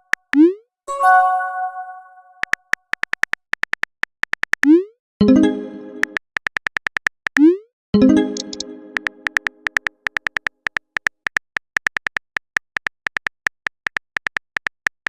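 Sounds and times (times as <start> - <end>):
ringing chime: 0.9 - 2.4.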